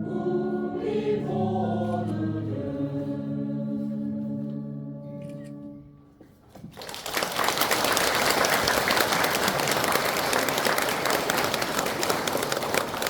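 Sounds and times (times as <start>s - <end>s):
crowd applauding: 6.7s - 13.0s.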